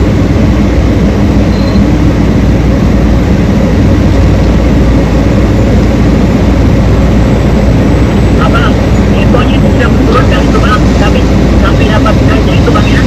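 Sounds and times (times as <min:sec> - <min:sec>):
large diesel engine droning: 0:00.0 - 0:13.0.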